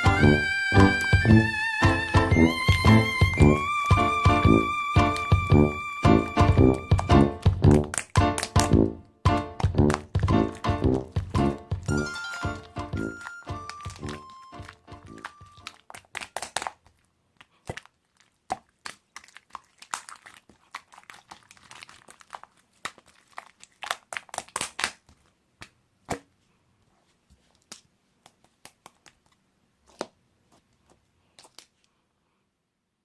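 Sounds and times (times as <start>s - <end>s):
short musical phrase: 0.0s - 7.4s, 10.3s - 15.6s
clicks cracks and crinkling: 7.0s - 8.7s, 11.6s - 25.3s.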